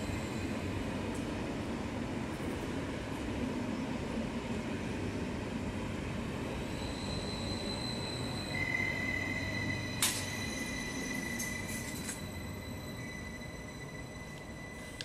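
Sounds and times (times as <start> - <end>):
wheels squealing on rails: 0.0 - 1.0, 6.2 - 15.0
train wheels rumbling on rails: 0.0 - 15.0.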